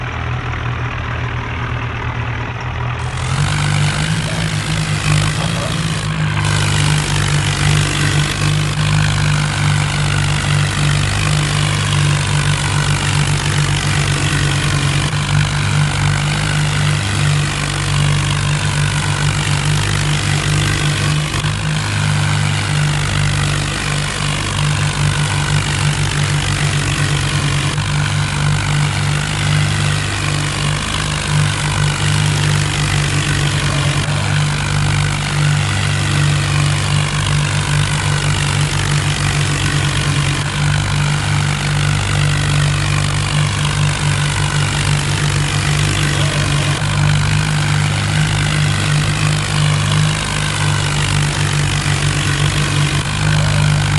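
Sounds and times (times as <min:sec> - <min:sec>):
diesel tractor engines running: 0:00.0 - 0:53.9.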